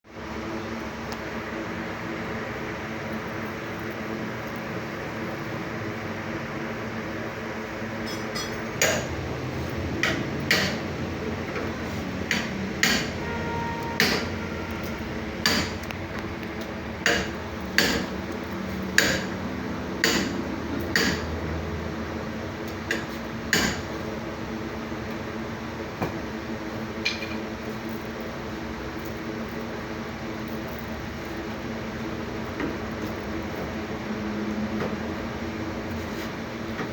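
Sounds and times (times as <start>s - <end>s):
steady background hum: 0.1s - 36.9s.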